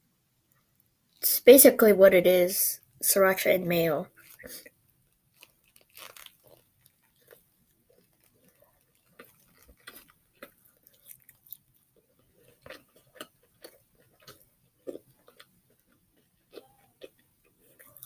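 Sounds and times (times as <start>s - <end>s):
person chewing with wet mouth clicks: 5.4s - 18.0s.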